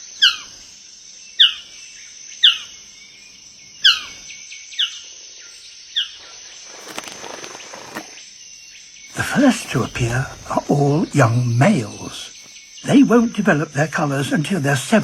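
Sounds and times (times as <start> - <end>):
rustle: 0.0 - 12.7
bird calling: 0.0 - 13.6
high insect drone: 0.0 - 15.0.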